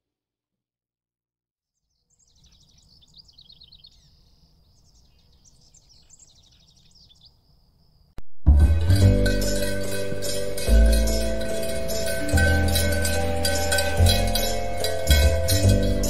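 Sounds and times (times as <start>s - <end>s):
songbird trills and chirps: 1.7s - 8.2s.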